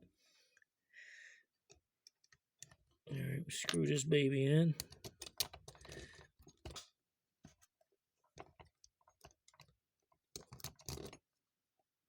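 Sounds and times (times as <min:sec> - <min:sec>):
small metal parts clicking: 0:04.8 - 0:06.2, 0:10.3 - 0:11.2.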